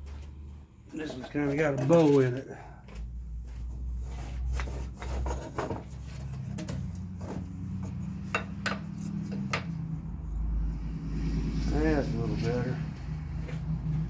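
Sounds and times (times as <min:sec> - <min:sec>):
wood rubbing and sliding: 0:03.4 - 0:10.9
wood knocking on wood: 0:04.6 - 0:09.8.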